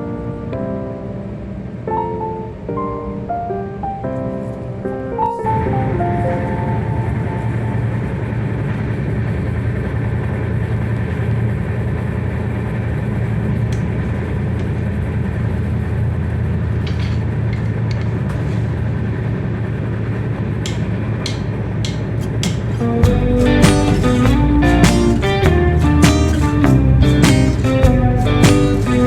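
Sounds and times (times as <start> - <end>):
train rumble inside carriage: 6.1 - 23.2.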